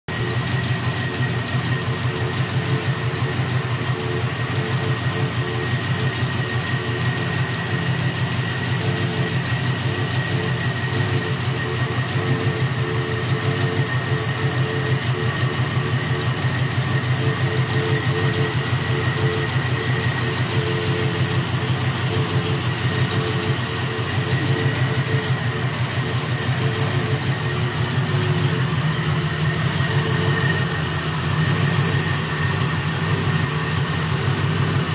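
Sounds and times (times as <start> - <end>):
car engine idling: 0.1 - 34.9.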